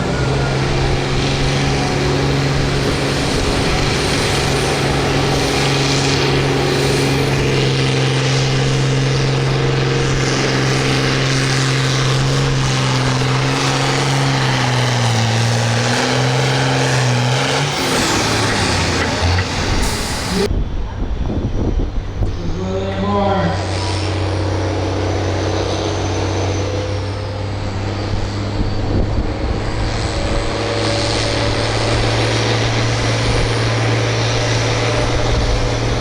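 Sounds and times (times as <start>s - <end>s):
tractor engine pulling hard: 0.0s - 36.0s.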